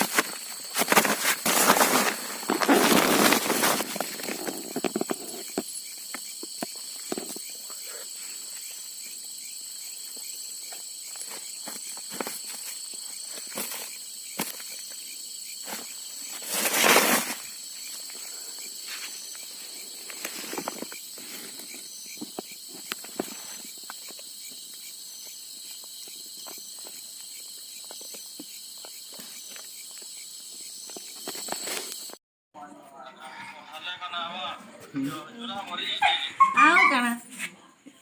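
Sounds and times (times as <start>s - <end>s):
footsteps: 0.0s - 5.7s
crickets trilling: 0.0s - 32.2s.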